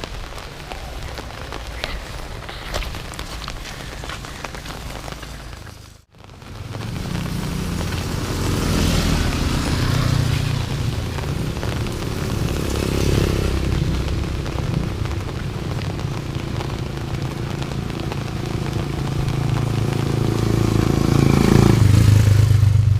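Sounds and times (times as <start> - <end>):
motorcycle engine running: 6.5 - 22.9.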